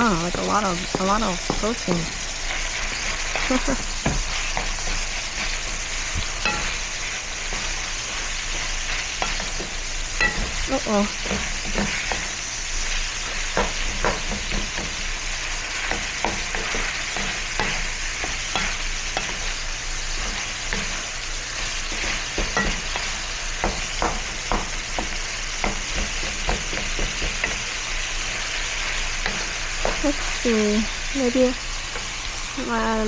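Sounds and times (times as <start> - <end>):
food sizzling in a frying pan: 0.0 - 33.0
utensil scraping a pan: 2.5 - 30.3.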